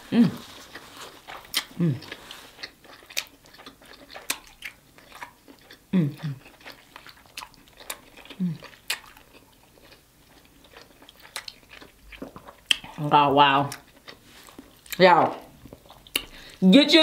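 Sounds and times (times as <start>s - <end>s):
person chewing wetly: 0.2s - 16.6s.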